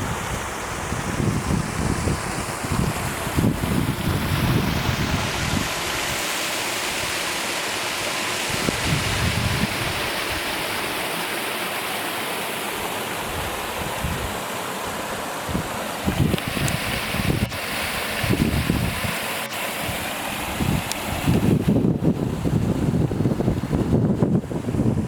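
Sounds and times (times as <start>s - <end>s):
wind buffeting microphone: 0.0s - 6.2s, 8.5s - 10.6s, 13.2s - 14.4s, 15.5s - 19.2s, 19.9s - 25.0s
creek rushing: 0.0s - 24.9s.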